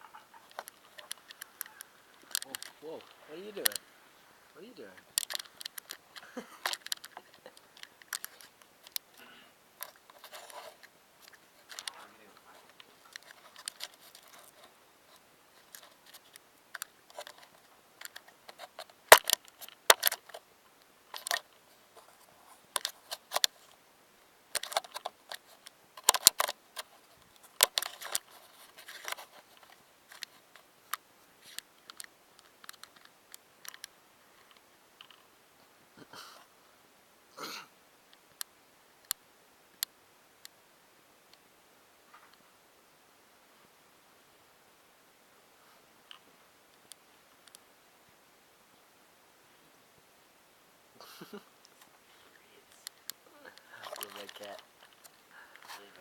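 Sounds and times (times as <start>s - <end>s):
sharp clicks and taps: 5.2s - 9.0s.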